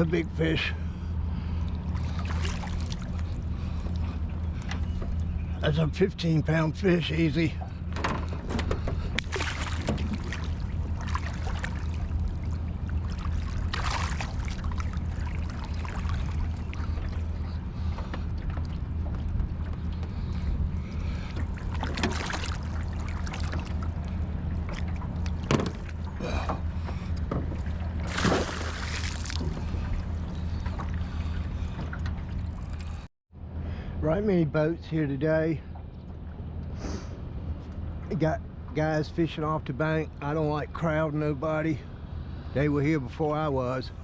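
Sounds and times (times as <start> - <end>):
water splashing against boat: 0.0 - 33.1
boat motor humming: 0.0 - 44.0.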